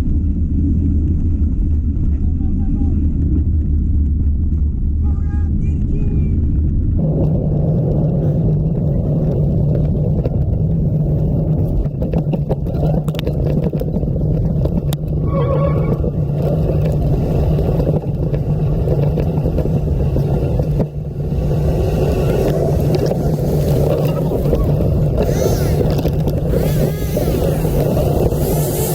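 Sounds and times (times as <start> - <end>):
wind buffeting microphone: 0.0 - 28.9
bike clicks and knocks: 8.4 - 15.2, 15.8 - 28.9.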